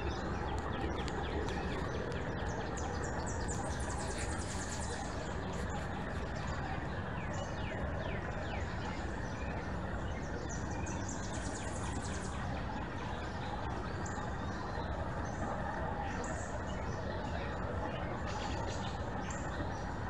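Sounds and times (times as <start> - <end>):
small birds chirping: 0.0 - 7.6.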